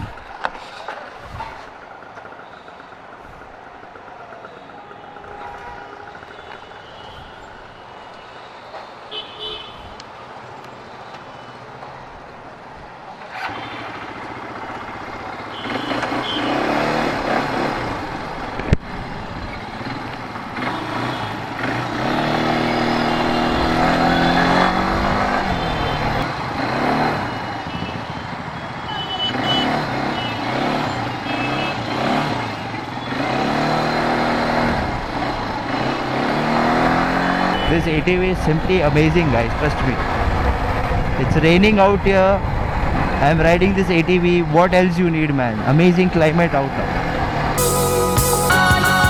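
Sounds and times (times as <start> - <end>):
atv engine accelerating: 13.2 - 27.8, 29.3 - 37.6, 47.1 - 49.0.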